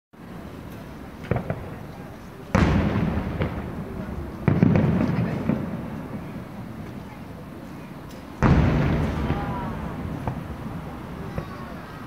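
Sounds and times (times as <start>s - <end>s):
small firework cracks: 0.7s - 7.1s, 8.0s - 12.0s
rolling echo: 0.7s - 7.4s, 8.1s - 12.0s
loud firework booms: 1.2s - 6.8s, 8.4s - 12.0s.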